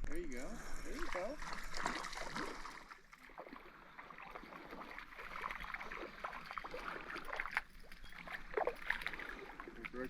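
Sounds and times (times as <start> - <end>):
water splashing and rippling: 0.0 - 10.0.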